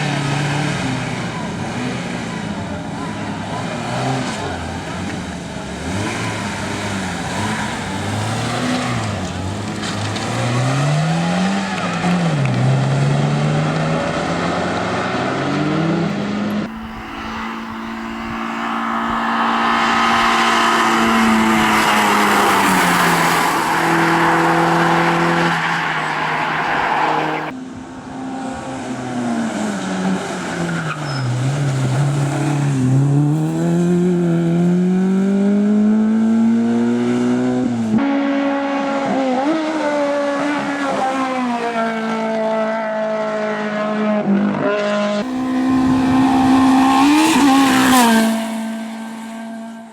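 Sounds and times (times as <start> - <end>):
race car engines revving: 0.0 - 49.9
tyres squealing: 16.7 - 27.5.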